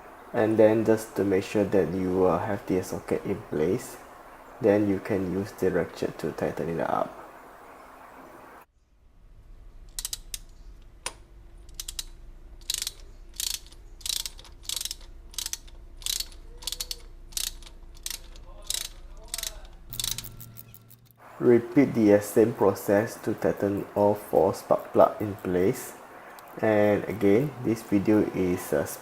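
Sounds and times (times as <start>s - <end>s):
socket ratchet clicking: 9.9s - 21.2s.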